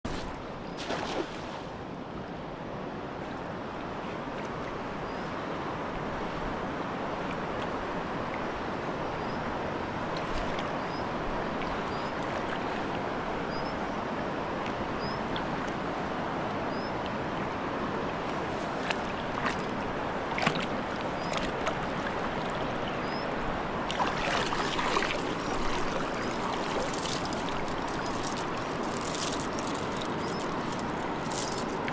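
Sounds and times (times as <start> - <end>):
wind: 0.0 - 31.9
water rushing: 14.2 - 31.9.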